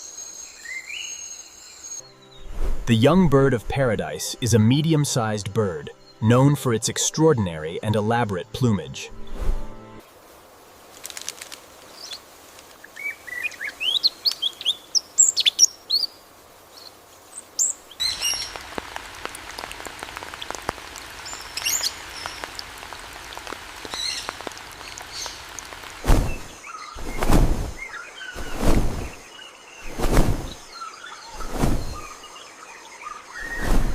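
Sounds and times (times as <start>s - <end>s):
steady hiss with ticks: 10.0s - 29.9s
wild birds calling: 11.8s - 33.7s.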